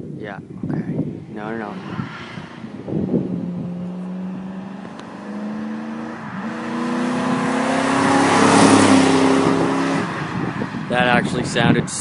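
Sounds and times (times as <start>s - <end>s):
car exhaust accelerating: 1.0s - 11.6s.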